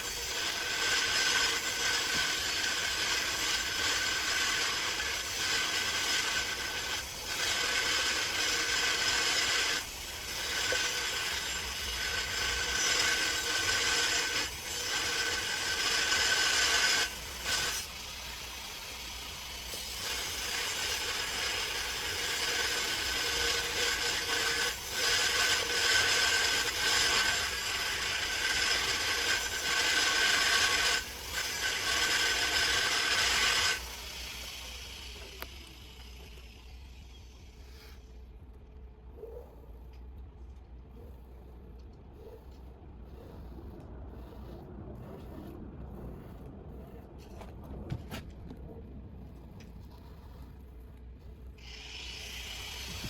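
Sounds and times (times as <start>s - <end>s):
small motorised tool whining: 0.0s - 38.4s, 51.4s - 53.0s.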